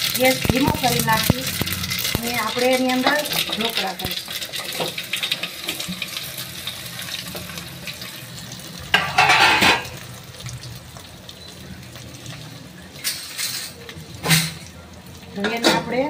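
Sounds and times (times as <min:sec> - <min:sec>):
food sizzling in oil: 0:00.0 - 0:16.0
scraping in a pan: 0:09.0 - 0:10.0, 0:13.0 - 0:14.6.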